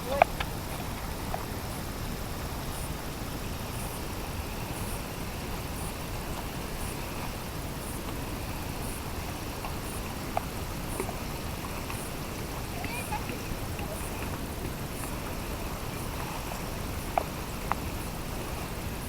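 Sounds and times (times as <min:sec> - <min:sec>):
outdoor rumble and hiss: 0:00.0 - 0:19.0
faint high tick: 0:17.1 - 0:17.8.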